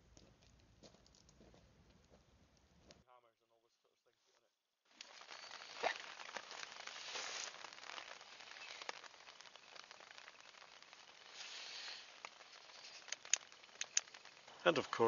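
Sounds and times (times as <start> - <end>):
rain on canvas: 4.9 - 15.0.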